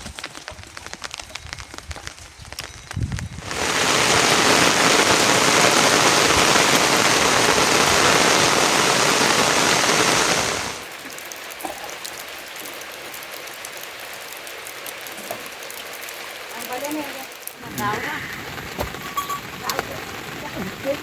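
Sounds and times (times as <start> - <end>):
heavy rain: 0.0 - 21.0
water drips: 10.8 - 21.0.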